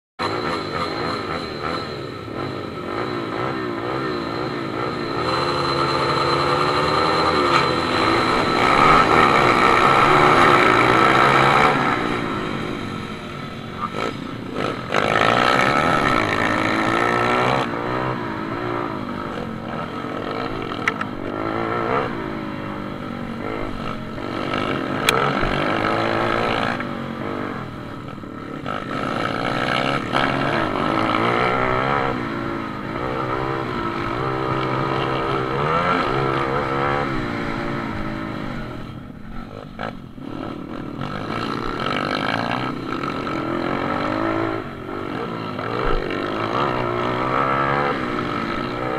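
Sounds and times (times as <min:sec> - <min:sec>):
pit bike engines revving: 0:00.2 - 0:48.9.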